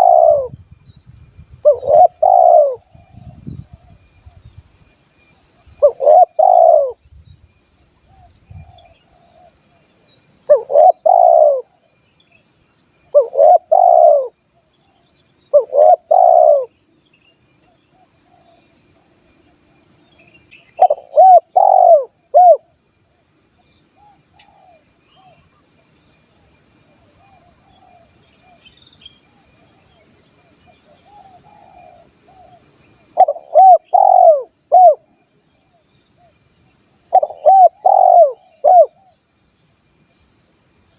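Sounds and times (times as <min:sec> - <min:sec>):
dove cooing: 0:00.0 - 0:00.6, 0:01.6 - 0:03.4, 0:05.8 - 0:07.0, 0:10.5 - 0:11.8, 0:13.1 - 0:14.4, 0:15.5 - 0:16.7, 0:20.8 - 0:22.6, 0:24.0 - 0:25.4, 0:30.9 - 0:32.6, 0:33.2 - 0:35.1, 0:37.1 - 0:39.2
high insect trill: 0:00.0 - 0:40.9.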